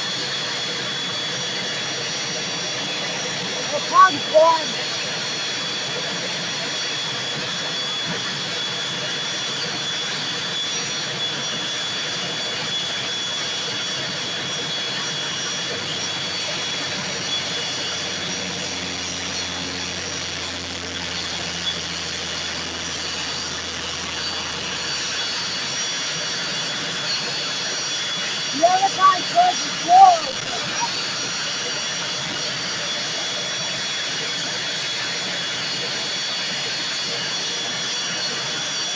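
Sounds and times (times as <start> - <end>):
jet engines whining: 0.0 - 38.9.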